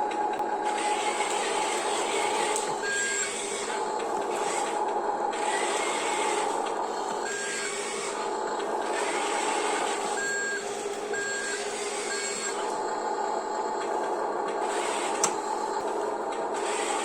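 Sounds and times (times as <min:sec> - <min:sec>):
toy vehicle motors whirring: 0:00.6 - 0:10.6, 0:11.2 - 0:12.7, 0:14.6 - 0:15.4, 0:16.5 - 0:17.0.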